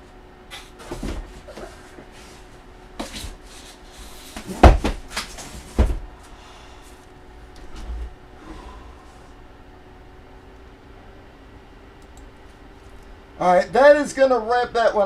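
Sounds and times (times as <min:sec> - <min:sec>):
loud thumps of boxes set down: 0:00.8 - 0:01.6, 0:04.4 - 0:06.1.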